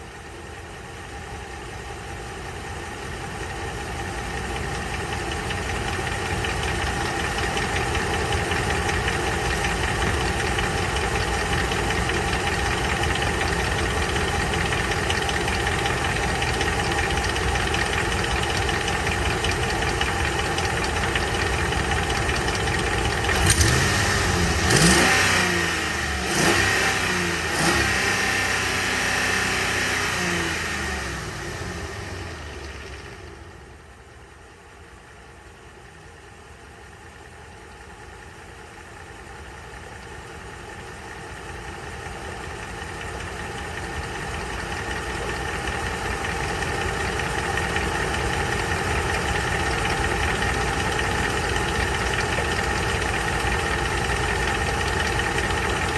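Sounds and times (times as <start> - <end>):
pickup engine idling with knock: 0.0 - 55.9
engine revving blips: 23.3 - 30.6.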